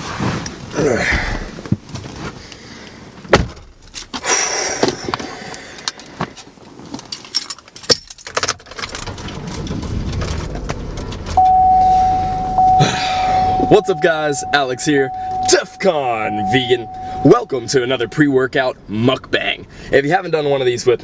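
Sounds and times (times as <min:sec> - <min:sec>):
car engine rumble: 0:07.8 - 0:21.0
steady electronic tone: 0:11.4 - 0:18.2.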